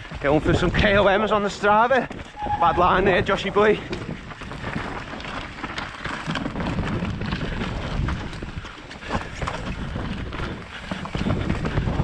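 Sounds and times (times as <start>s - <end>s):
mountain bike rattling on trail: 0.0s - 12.0s
wind on microphone: 2.4s - 5.0s, 6.3s - 12.0s.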